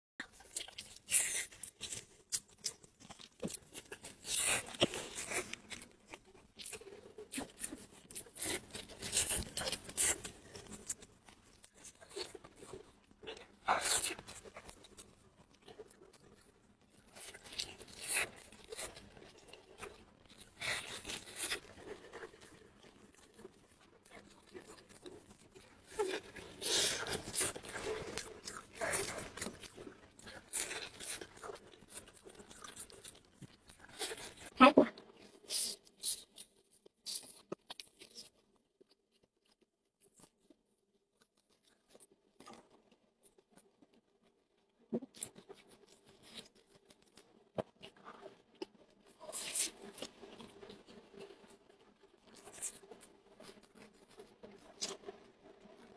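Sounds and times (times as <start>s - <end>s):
crunchy biting and chewing: 0.4s - 34.5s, 45.0s - 51.5s, 52.3s - 55.8s.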